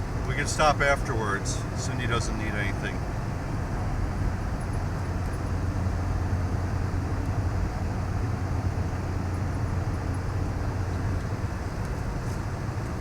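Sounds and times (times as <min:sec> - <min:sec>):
vehicle engine and tyre noise: 0:00.0 - 0:13.0.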